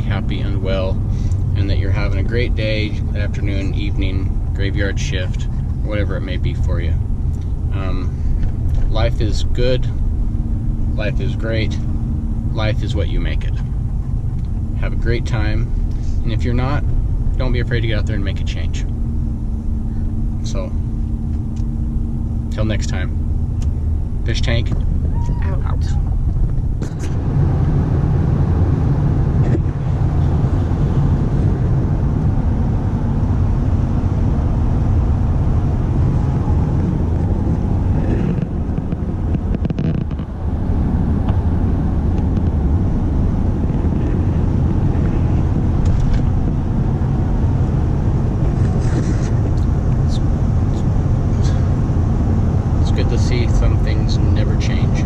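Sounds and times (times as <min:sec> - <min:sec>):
vehicle engine and road drone: 0:00.0 - 0:55.0.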